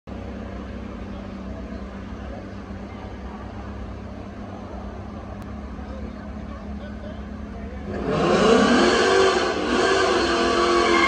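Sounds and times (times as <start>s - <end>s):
car engine idling: 0.1s - 8.8s.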